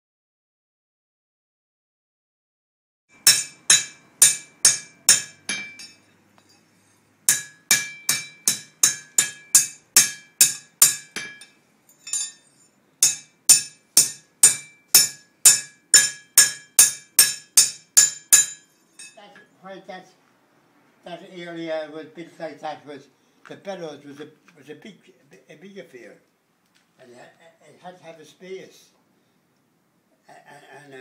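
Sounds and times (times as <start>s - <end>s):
hammer striking an anvil: 3.2s - 6.1s, 7.3s - 12.4s, 13.0s - 19.2s.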